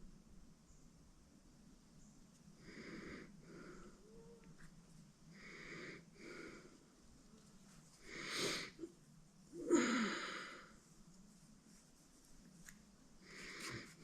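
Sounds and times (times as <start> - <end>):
person breathing: 2.6 - 4.3, 5.3 - 7.0, 8.0 - 8.9, 9.7 - 10.9, 13.2 - 14.0.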